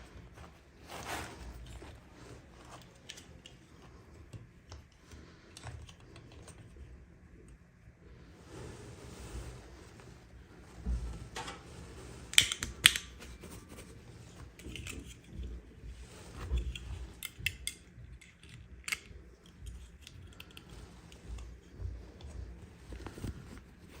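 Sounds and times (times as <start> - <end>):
packaging and plastic parts clicking: 12.3 - 13.3.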